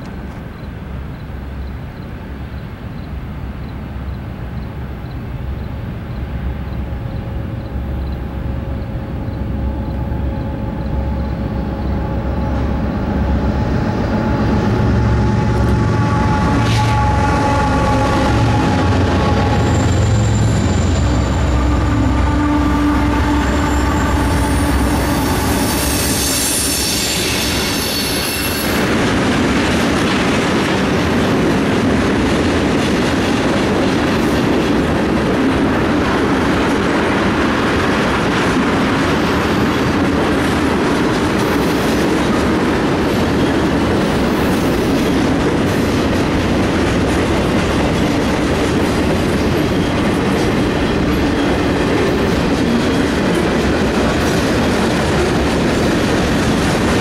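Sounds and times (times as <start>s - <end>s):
diesel locomotive passing: 0.0s - 57.0s
freight cars rolling by: 5.0s - 57.0s
high wheel squeal: 15.4s - 29.0s.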